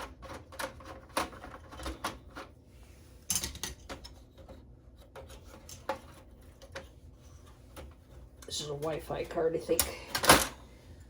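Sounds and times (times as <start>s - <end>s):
computer parts clicking and knocking: 0.0s - 2.5s.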